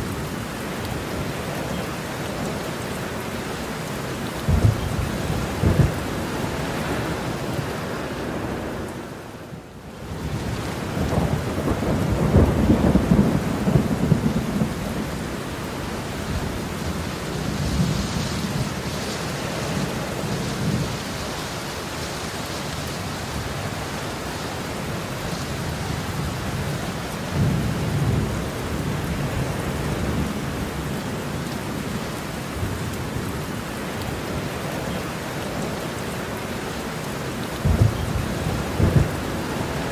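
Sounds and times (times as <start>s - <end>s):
heavy rain falling: 0.0s - 39.9s
rolling thunder: 4.5s - 7.2s, 10.3s - 15.2s, 37.6s - 39.9s.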